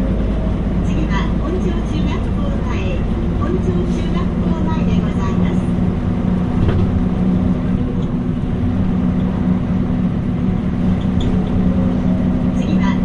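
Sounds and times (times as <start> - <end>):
bus diesel engine drone: 0.0 - 13.0.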